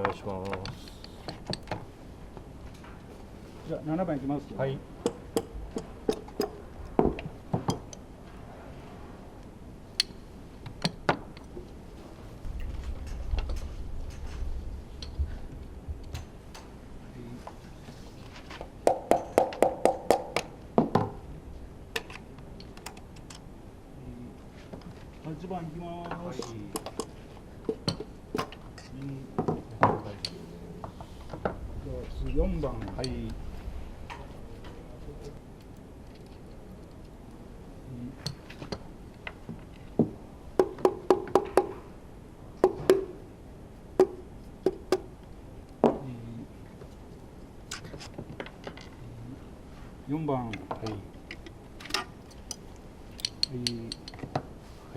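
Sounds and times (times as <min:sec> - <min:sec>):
sharp metallic taps on engine parts: 0:18.8 - 0:20.5.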